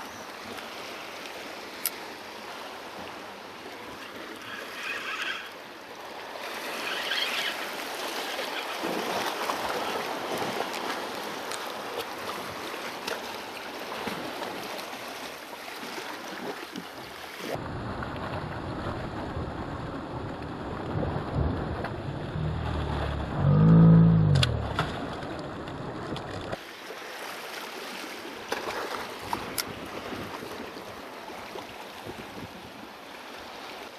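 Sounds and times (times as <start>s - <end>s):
sea waves washing against rocks: 0.5s - 33.7s
wind on microphone: 17.6s - 26.6s
low droning tone: 21.8s - 25.2s.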